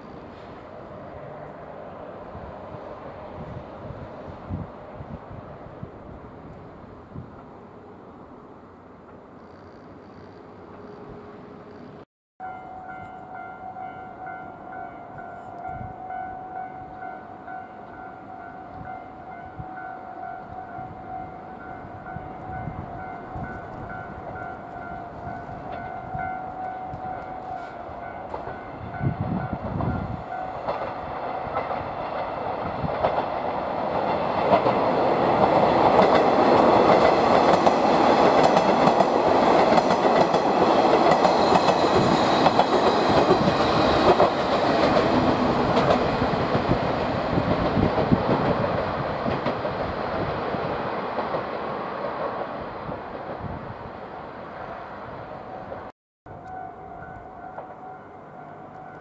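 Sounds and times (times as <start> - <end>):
train passing: 0.0 - 59.0
level-crossing alarm ringing: 12.4 - 30.7
wheels clicking over rail joints: 29.8 - 52.5.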